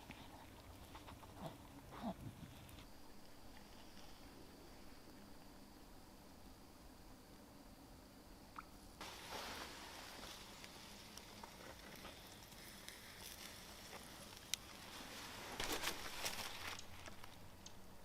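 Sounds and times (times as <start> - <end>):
campfire crackles and pops: 8.6 - 17.9.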